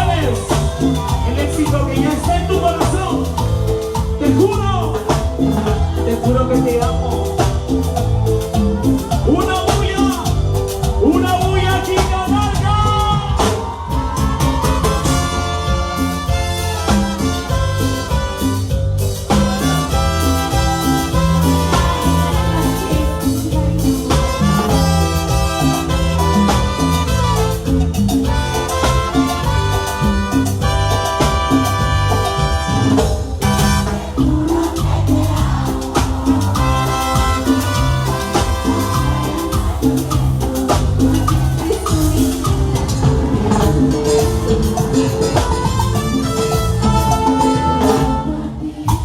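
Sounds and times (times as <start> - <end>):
cumbia band playing: 0.0 - 49.0
hand percussion: 0.0 - 49.0
maracas: 0.0 - 49.0
steady bass line: 0.0 - 49.0
held brass notes: 13.7 - 48.9.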